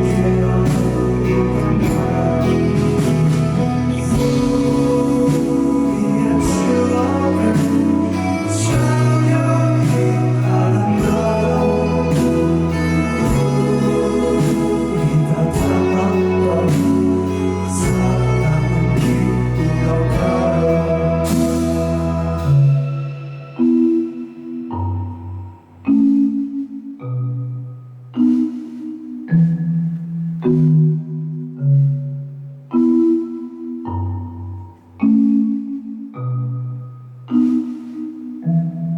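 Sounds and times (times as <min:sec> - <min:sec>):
bass guitar low notes: 0:00.0 - 0:23.5
person singing: 0:00.0 - 0:24.2
live band music: 0:00.0 - 0:26.8.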